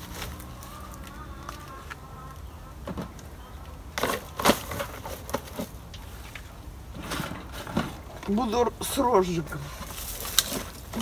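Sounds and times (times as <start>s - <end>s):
rustling of kindling: 0.0s - 11.0s
wood cracking: 9.8s - 11.0s.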